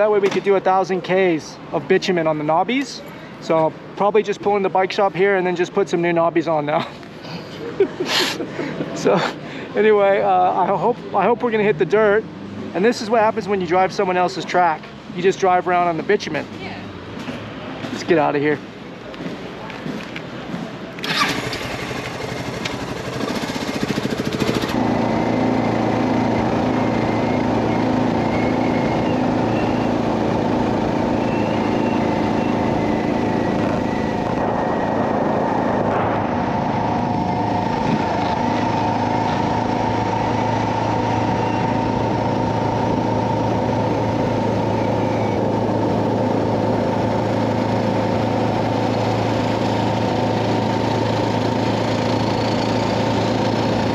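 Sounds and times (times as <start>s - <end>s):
motorcycle engine running: 21.0s - 35.7s, 36.3s - 53.9s.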